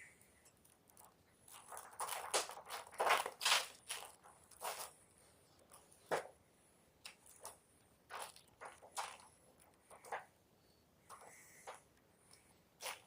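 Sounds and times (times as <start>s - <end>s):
chalk block crunching: 0.6s - 5.0s, 12.8s - 13.0s.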